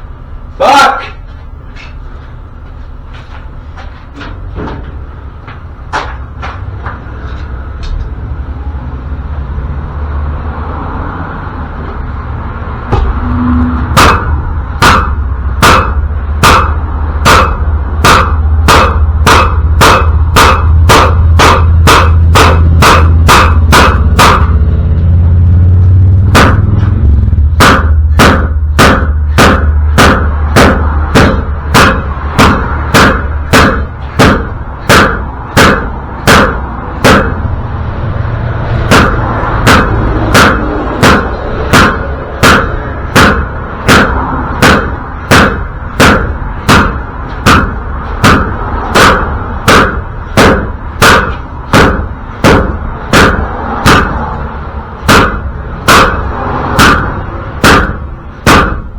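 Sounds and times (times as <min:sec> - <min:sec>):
hammer blows on metal: 0:12.8 - 0:25.0, 0:26.2 - 0:37.6, 0:38.7 - 0:54.4, 0:55.0 - 0:58.9.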